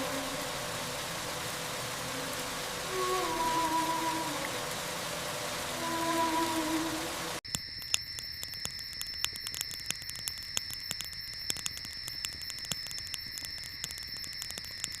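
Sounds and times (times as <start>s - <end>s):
insects trilling: 0.0s - 15.0s
sharp clicks: 7.5s - 15.0s.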